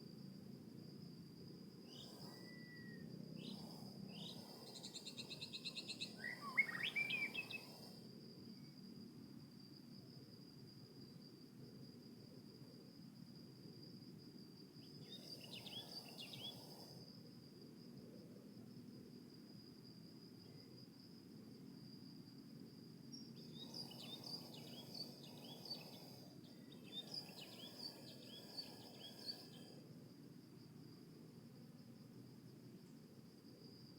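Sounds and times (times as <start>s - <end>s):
high-pitched insect trill: 0.0s - 33.9s
faint bird chirps: 1.9s - 8.8s, 14.8s - 17.0s, 23.1s - 29.8s.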